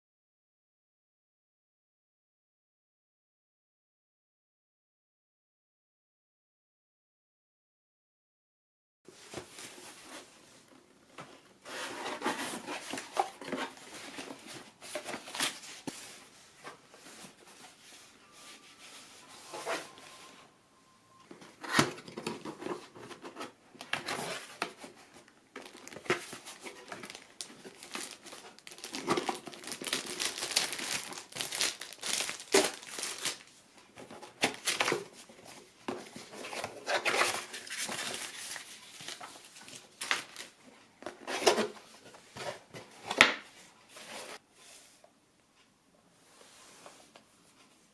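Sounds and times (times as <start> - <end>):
wrapping crinkling and tearing: 25.6 - 33.5, 34.4 - 35.0, 36.9 - 40.6.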